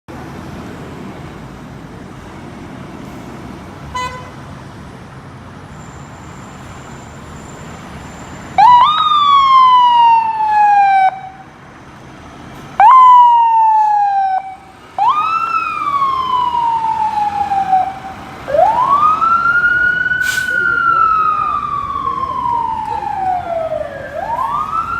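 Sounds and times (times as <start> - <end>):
engine and traffic rumble: 0.1 - 24.9
fire engine siren: 6.0 - 11.6, 12.7 - 24.9.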